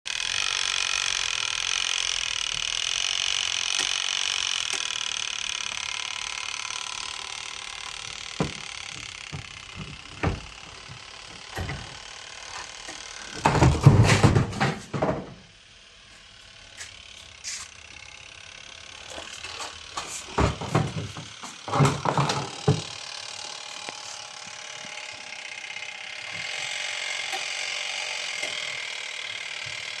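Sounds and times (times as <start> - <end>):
washing machine tub whirring: 8.3 - 16.2, 18.8 - 23.8.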